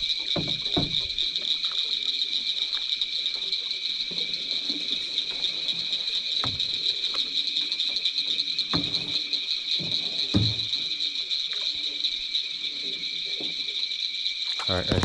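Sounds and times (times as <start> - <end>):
night insects chorus: 0.0 - 15.0
knocks against boat hull: 0.3 - 1.2, 9.8 - 10.8.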